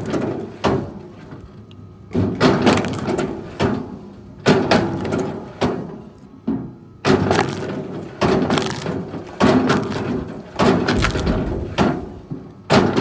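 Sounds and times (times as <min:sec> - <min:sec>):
wood cracking and crunching: 0:02.5 - 0:03.4, 0:07.1 - 0:12.2.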